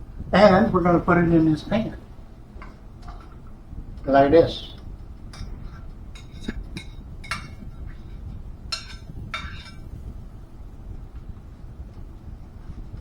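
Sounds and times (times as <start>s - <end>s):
utensil clinking and scraping a bowl: 5.3s - 10.0s.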